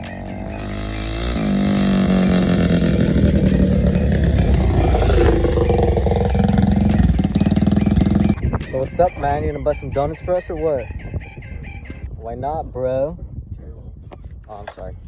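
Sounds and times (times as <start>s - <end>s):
quad engine revving: 0.0s - 8.5s.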